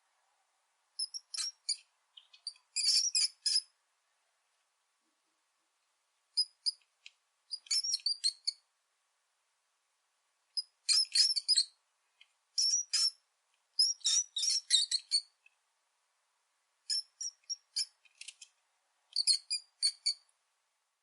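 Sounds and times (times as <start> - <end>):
rat squeaking: 1.0 - 3.7, 6.4 - 6.8, 7.5 - 8.6, 10.6 - 11.8, 12.6 - 13.2, 13.8 - 15.4, 16.9 - 18.5, 19.1 - 20.3.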